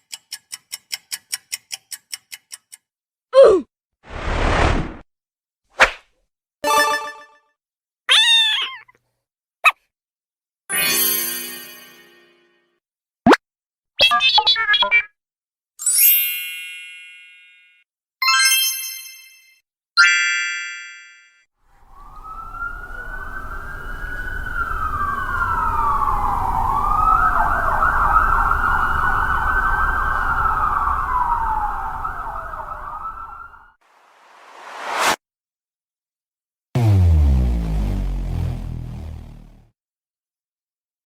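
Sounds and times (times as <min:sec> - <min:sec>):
emergency siren wailing: 0:21.8 - 0:33.8
low rumble: 0:36.8 - 0:39.7.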